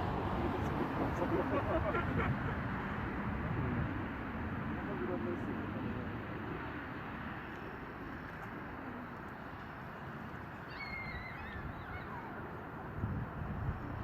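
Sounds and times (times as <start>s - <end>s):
bird wavering call: 10.6s - 12.3s.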